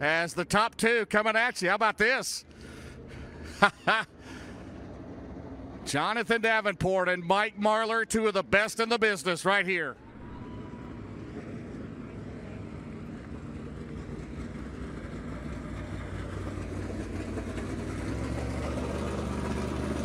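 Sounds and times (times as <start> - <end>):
race car engine running: 2.4 - 6.7, 10.0 - 20.0.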